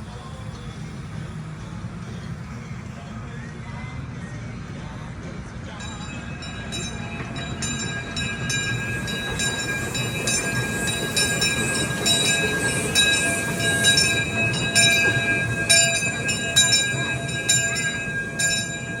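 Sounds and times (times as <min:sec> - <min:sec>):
train rumbling on track: 0:05.1 - 0:19.0
wheels squealing: 0:05.8 - 0:19.0
wheels clicking over rail joints: 0:06.0 - 0:19.0.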